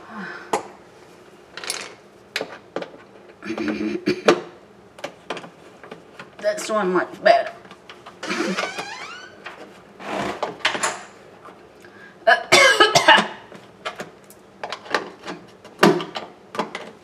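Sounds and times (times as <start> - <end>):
man coughing: 12.3 - 13.4.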